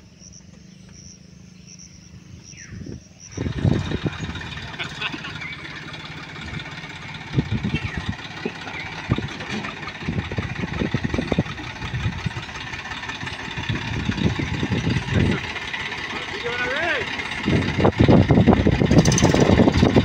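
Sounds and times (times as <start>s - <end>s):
diesel tractor engine running: 0.0s - 20.0s.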